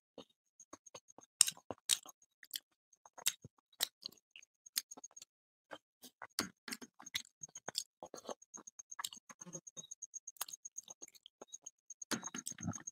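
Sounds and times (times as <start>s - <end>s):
wet lip smacks and chewing: 0.9s - 9.6s
faint fast high ticking: 6.2s - 12.9s.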